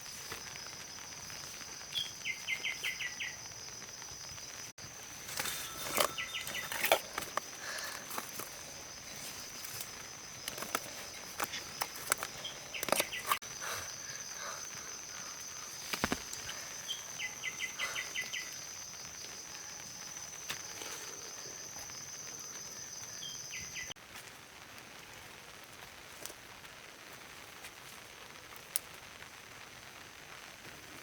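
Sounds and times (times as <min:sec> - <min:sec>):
high insect drone: 0:00.0 - 0:23.9
clicks and rustles: 0:05.2 - 0:13.4.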